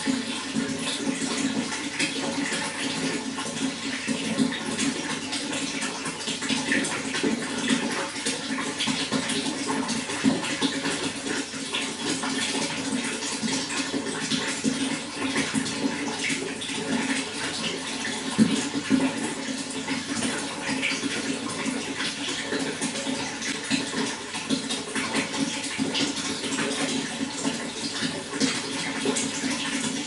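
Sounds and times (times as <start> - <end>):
running water splashing and gurgling: 0.0 - 30.0.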